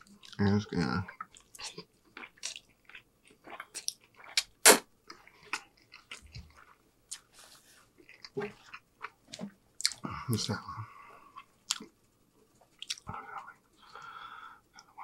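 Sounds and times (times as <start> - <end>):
chewing spaghetti: 0.0 - 7.4, 11.3 - 12.0, 12.6 - 13.1.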